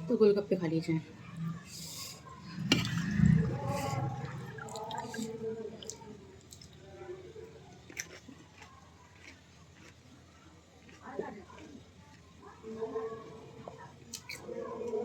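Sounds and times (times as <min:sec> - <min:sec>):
wet chewing: 0:07.7 - 0:10.1.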